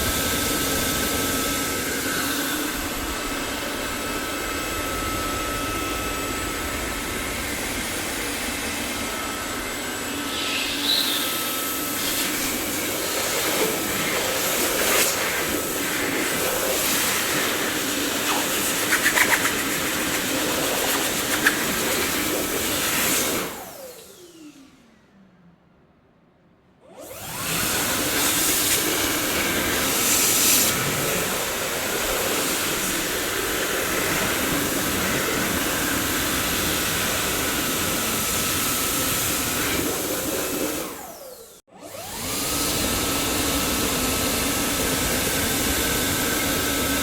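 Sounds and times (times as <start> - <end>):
vacuum cleaner running: 0.0 - 25.1, 26.8 - 47.0
motor whine spinning down: 0.0 - 25.2.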